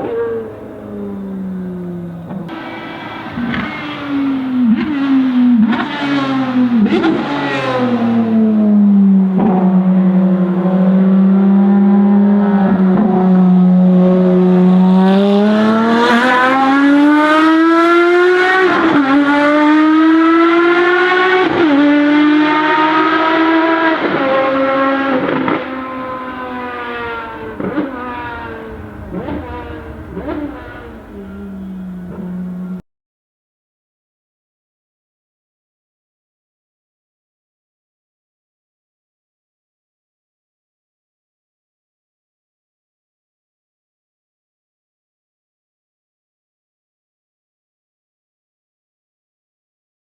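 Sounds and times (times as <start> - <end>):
racing car engine revving: 0.0 - 32.8.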